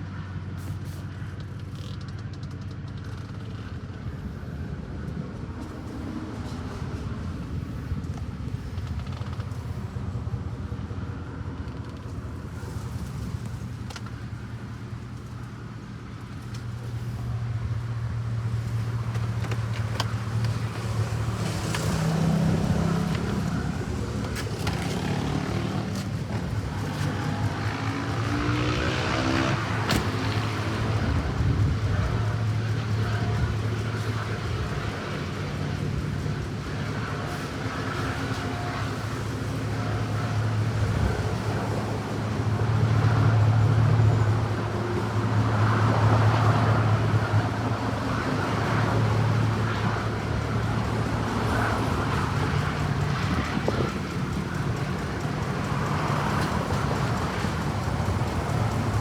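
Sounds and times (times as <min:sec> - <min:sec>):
car engine running: 0:11.5 - 0:59.0.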